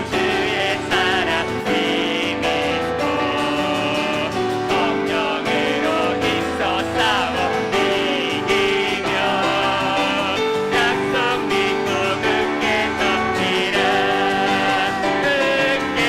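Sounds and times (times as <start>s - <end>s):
band accompaniment: 0.0s - 16.0s
people singing worship song: 0.0s - 16.0s.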